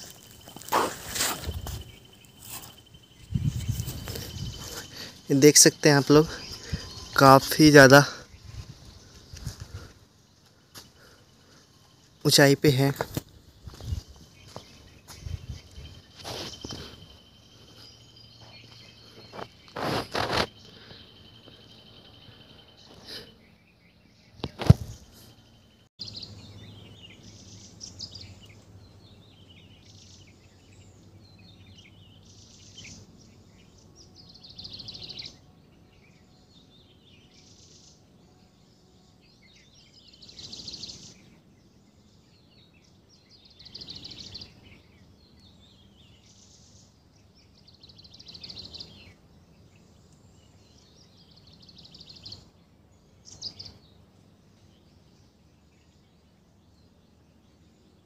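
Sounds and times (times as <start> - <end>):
birds chirping and calling: 0.0 - 38.1, 39.2 - 58.0.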